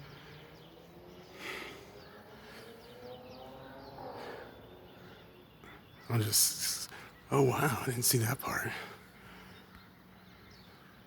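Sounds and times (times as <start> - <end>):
birds chirping: 0.0 - 11.0
faint outdoor background noise: 0.0 - 11.0.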